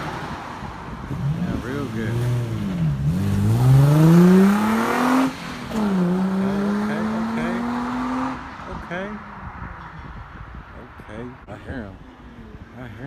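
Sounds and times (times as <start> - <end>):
car engine accelerating hard: 0.0 - 9.9.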